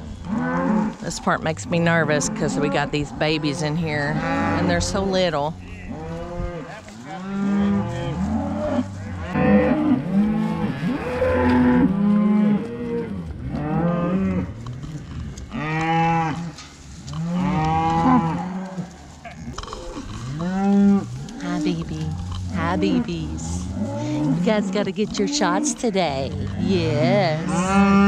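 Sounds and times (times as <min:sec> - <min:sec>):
cattle mooing: 0:00.0 - 0:28.0.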